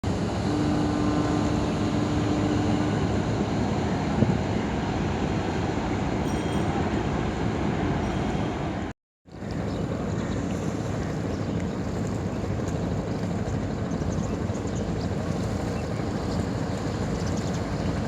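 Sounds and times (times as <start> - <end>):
water rushing: 0.0 - 13.9
boat engine rumble: 0.0 - 18.0
wind: 0.0 - 18.0.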